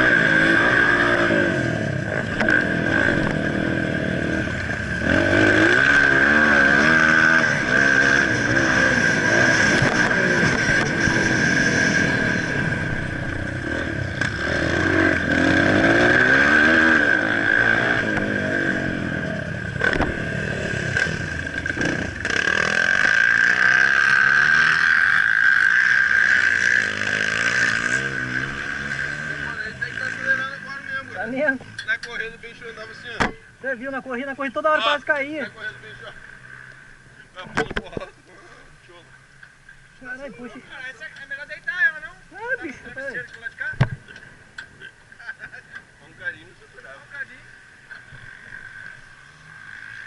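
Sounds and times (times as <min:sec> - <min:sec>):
high-pitched whine: 0:00.0 - 0:31.2
motocross bike engines revving: 0:00.0 - 0:50.0.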